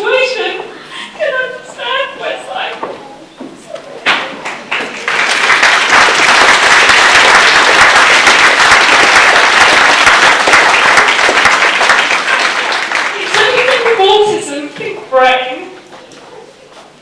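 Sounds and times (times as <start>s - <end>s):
audience applauding: 4.5s - 14.3s.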